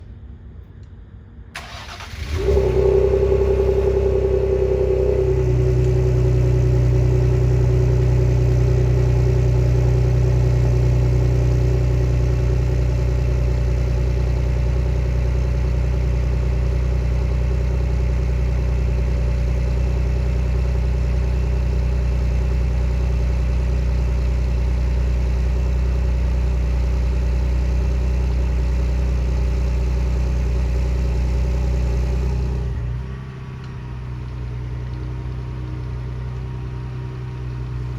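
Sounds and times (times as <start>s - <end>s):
car engine idling: 0.2s - 37.9s
engine cranking: 1.6s - 6.0s.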